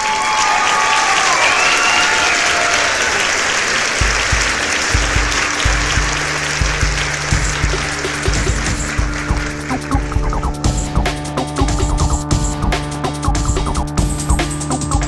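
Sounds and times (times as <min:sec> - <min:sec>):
heavy rain hissing: 0:01.3 - 0:15.0
music with thumping bass beat: 0:04.0 - 0:15.0.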